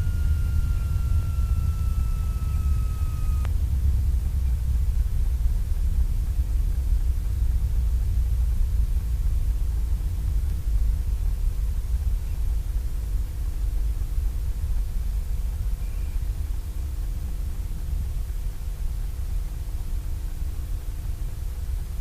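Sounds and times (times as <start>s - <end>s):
faint even hum: 0.0s - 22.0s
radial engine low rumble: 0.0s - 22.0s.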